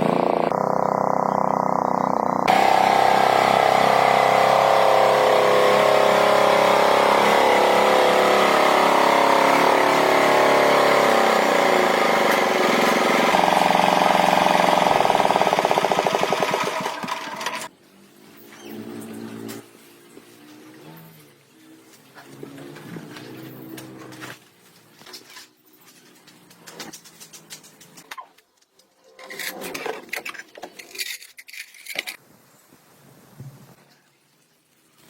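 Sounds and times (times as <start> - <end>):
tractor engine running: 0.0 - 17.7.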